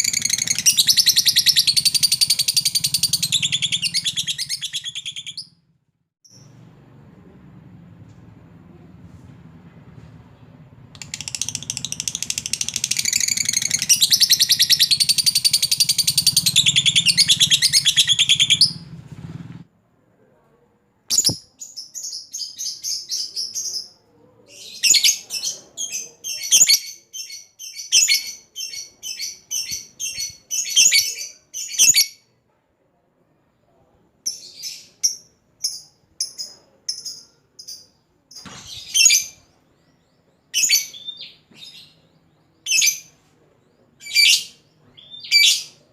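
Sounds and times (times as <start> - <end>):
bird high trilling chatter: 0.0 - 5.4
low hum: 6.4 - 13.0
bird rapid short chirps: 21.1 - 21.4.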